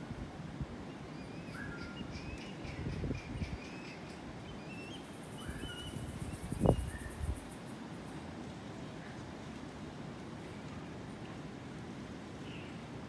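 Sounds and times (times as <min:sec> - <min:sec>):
birds whistling and chirping: 0:04.7 - 0:07.1.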